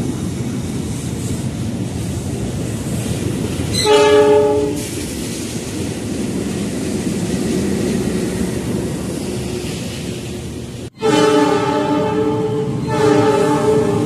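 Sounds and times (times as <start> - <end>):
electric train rumbling on rails: 0.0 - 14.0
train horn: 3.7 - 4.9, 10.9 - 14.0.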